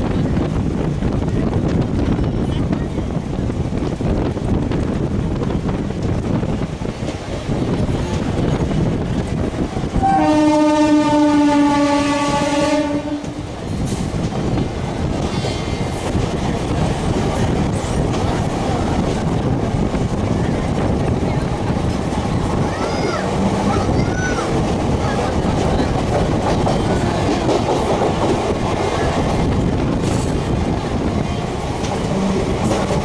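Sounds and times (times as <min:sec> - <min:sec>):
train rumbling on rails: 0:00.0 - 0:33.0
train horn blast: 0:10.0 - 0:13.5.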